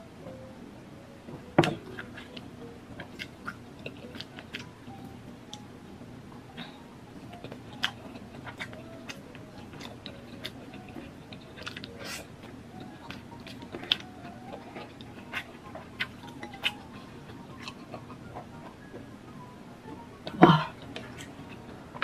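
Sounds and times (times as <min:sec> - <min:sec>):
person chewing: 0:01.6 - 0:02.4, 0:03.0 - 0:04.8, 0:06.6 - 0:18.9.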